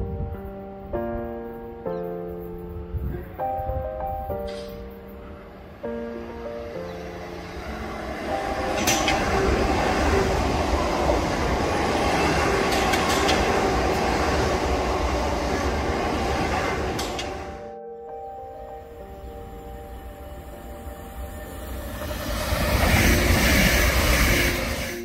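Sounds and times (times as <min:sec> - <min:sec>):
train wheels rumbling on rail: 0:07.3 - 0:17.6, 0:21.5 - 0:25.0.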